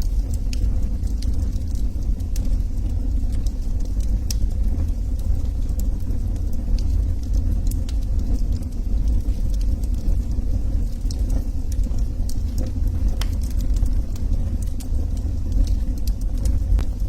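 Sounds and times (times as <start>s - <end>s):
fire crackling and popping: 0.0s - 17.0s
low rumble: 0.0s - 17.0s.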